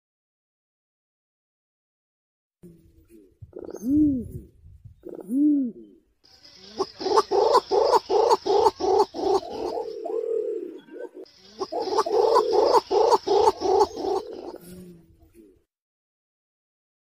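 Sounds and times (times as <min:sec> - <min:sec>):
pigeon cooing: 0:02.6 - 0:15.7.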